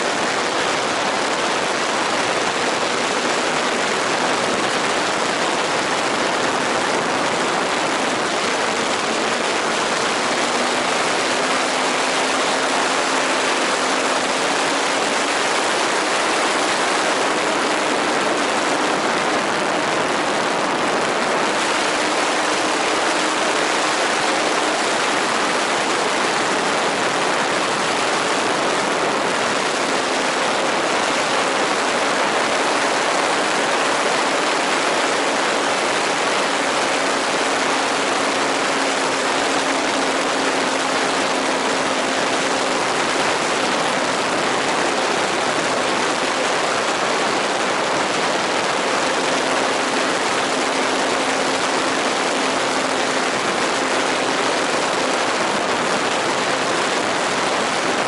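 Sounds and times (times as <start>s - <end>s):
model airplane engine drone: 0.0s - 58.0s
steady rushing noise: 0.0s - 58.0s.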